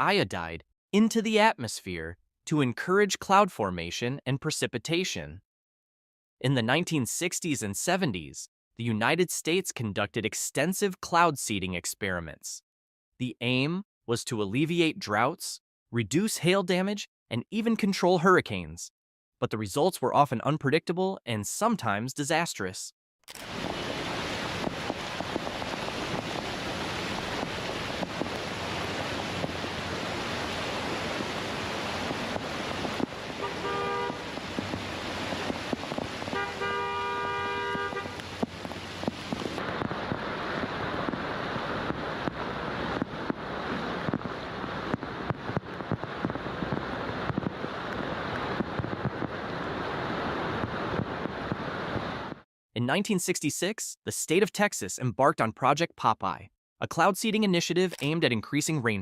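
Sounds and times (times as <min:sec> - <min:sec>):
steady rushing noise: 0:23.4 - 0:52.4
car horn: 0:33.4 - 0:34.3, 0:36.3 - 0:38.4.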